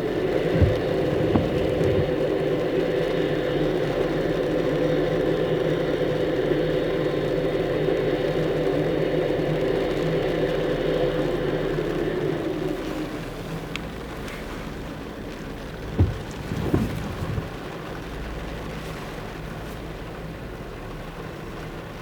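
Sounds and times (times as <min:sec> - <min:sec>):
truck engine and road drone: 0:00.0 - 0:22.0
knocks: 0:00.6 - 0:02.1, 0:16.0 - 0:17.5.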